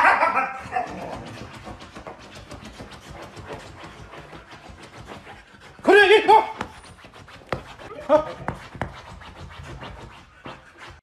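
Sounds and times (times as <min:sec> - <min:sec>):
dog crying: 0:00.0 - 0:01.3
paws scratching fabric couch: 0:00.0 - 0:11.0.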